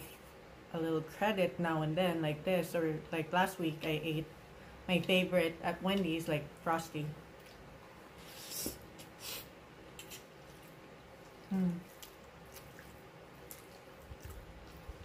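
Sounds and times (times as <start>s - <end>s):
person eating pasta: 7.4s - 15.0s
person humming: 11.5s - 11.9s.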